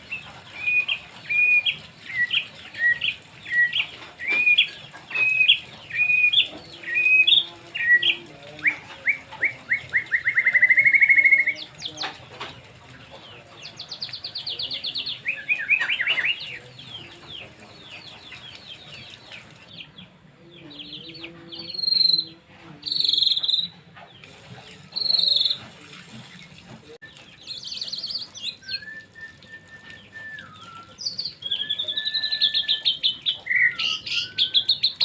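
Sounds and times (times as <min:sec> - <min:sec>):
bird singing whistled song: 0:00.5 - 0:11.7, 0:14.0 - 0:17.1, 0:21.6 - 0:23.7, 0:25.0 - 0:25.6, 0:27.0 - 0:35.0.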